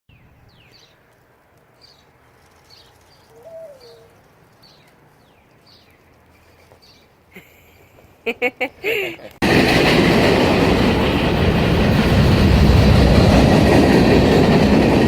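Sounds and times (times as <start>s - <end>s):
bird chirping: 0.1s - 7.2s
bird cooing note: 3.3s - 4.2s.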